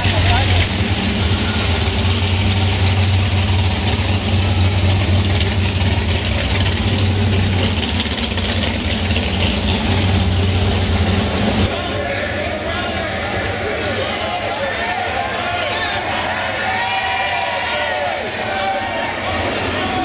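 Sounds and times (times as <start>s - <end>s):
car engine idling loudly: 0.0s - 11.8s.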